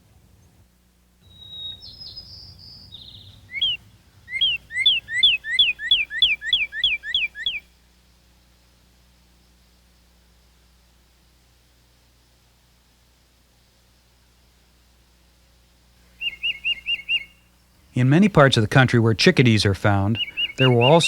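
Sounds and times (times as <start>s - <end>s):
songbird whistling: 1.2s - 7.7s, 16.1s - 17.5s, 20.1s - 21.0s.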